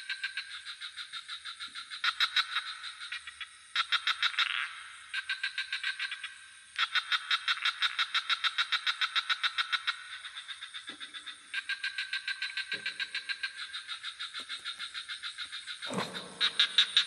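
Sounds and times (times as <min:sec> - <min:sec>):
rapid pulsing frog calls: 0:00.0 - 0:17.0
high insect drone: 0:07.6 - 0:17.0
deep frog croaks: 0:10.8 - 0:17.0.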